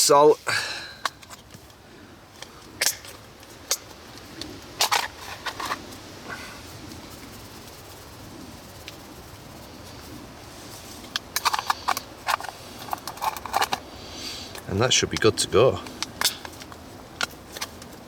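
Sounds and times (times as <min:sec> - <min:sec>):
faint hiss: 0:00.0 - 0:18.0
cooking gear clicks and knocks: 0:04.8 - 0:05.8, 0:11.1 - 0:13.9, 0:14.5 - 0:18.0.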